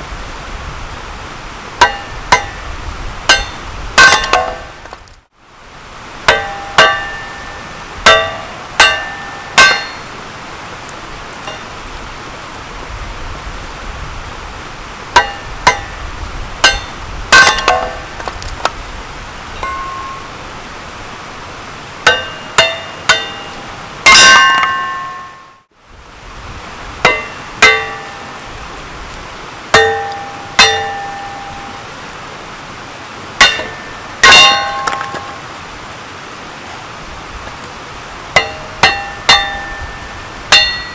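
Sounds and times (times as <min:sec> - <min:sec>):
hammer splitting wood on metal: 0:01.8 - 0:02.6, 0:03.3 - 0:05.2, 0:08.0 - 0:10.1, 0:15.2 - 0:15.9, 0:16.6 - 0:18.8, 0:22.1 - 0:25.4, 0:33.4 - 0:35.4, 0:38.4 - 0:39.8.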